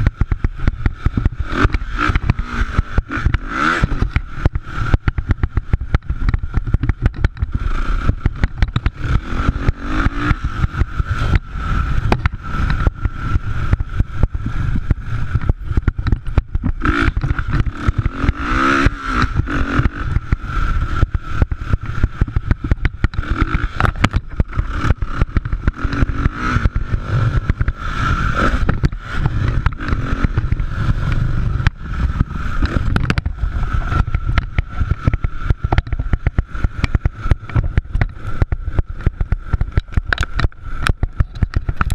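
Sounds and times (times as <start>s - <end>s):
motorcycle engines revving: 0.0s - 41.9s.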